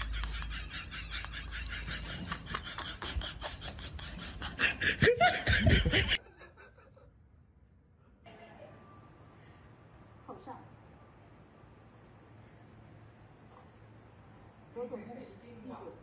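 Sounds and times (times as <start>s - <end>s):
person laughing: 0.0s - 7.1s.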